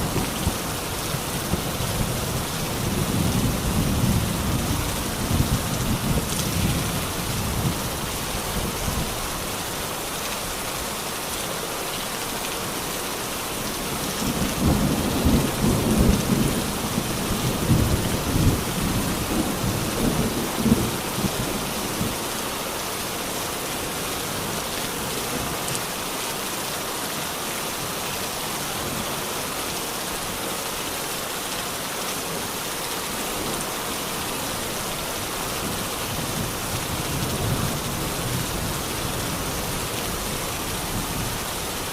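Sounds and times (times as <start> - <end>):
rolling rumble of thunder: 0.0 - 7.8, 14.2 - 22.2
steady rain falling: 0.0 - 41.9.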